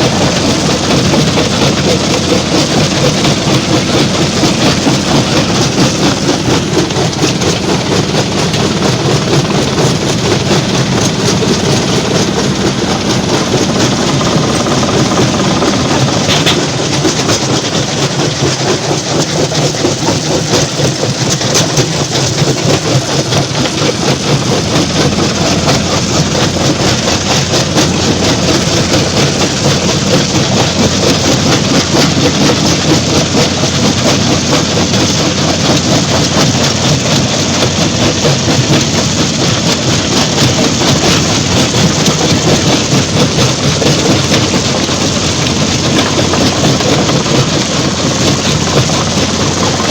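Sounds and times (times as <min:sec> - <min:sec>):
heavy engine drone: 0:00.0 - 0:49.9
rock clattering in crusher: 0:00.0 - 0:49.9.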